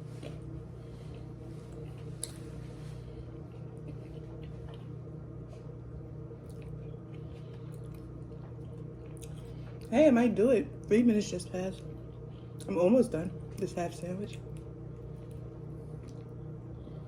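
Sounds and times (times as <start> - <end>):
person chewing sandwich: 0.0 - 9.9, 14.3 - 17.0
steady low hum: 0.0 - 17.0.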